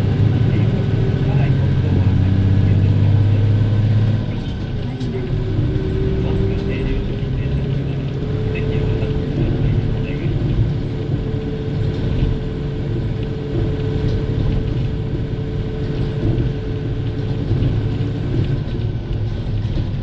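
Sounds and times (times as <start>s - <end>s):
diesel engine drone: 0.0s - 20.0s
road rumble: 0.0s - 20.0s.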